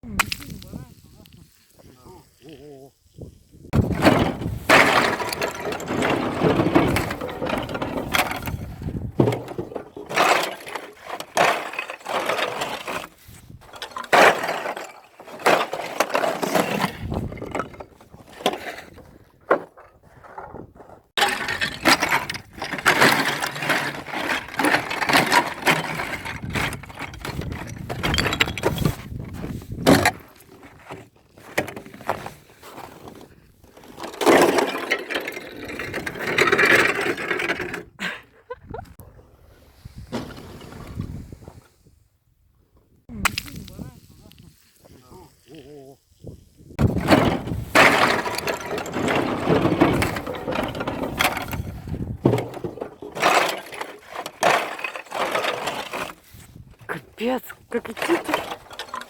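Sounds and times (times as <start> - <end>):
ice cracking and crunching: 46.6 - 59.0.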